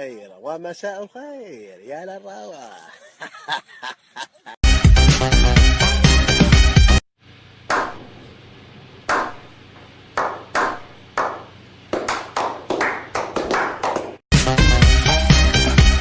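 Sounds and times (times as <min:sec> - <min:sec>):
sharp hand claps: 0:09.1 - 0:09.5, 0:10.2 - 0:14.2.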